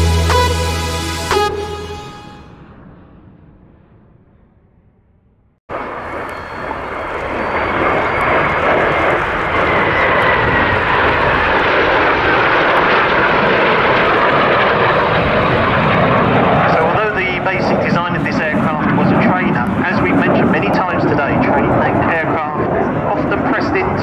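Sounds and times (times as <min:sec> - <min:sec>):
high jet whine: 0:00.0 - 0:04.0, 0:05.7 - 0:24.0
jet engine rushing: 0:05.7 - 0:24.0.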